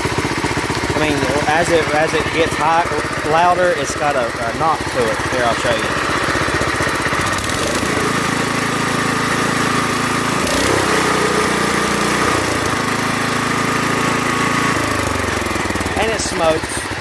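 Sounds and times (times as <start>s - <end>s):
engine knock: 0.0s - 17.0s
garden tractor engine running: 0.0s - 17.0s.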